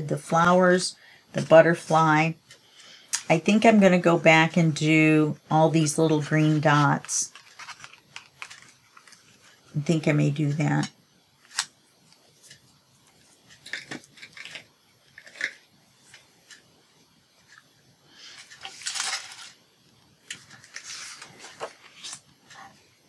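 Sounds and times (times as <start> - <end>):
paper rustling: 6.4 - 9.7, 18.3 - 19.6, 20.3 - 22.9.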